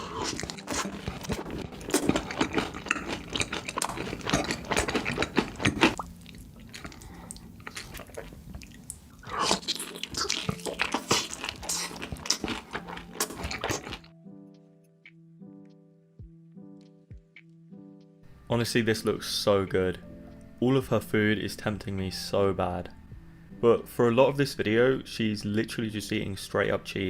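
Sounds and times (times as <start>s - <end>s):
crunchy bites: 0.0s - 6.1s, 6.8s - 14.1s
wet chewing: 0.0s - 14.1s.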